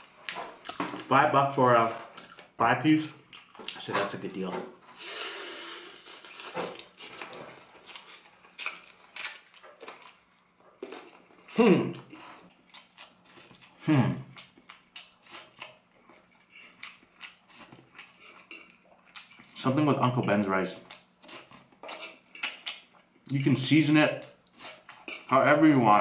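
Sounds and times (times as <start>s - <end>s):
chewing fried chicken: 6.0s - 19.7s, 20.8s - 23.4s.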